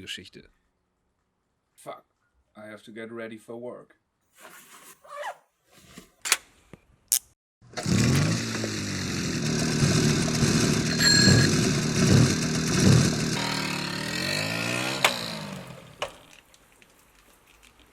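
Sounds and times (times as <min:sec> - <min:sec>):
small engine running: 0:07.7 - 0:16.3
brief high tone: 0:10.7 - 0:11.9.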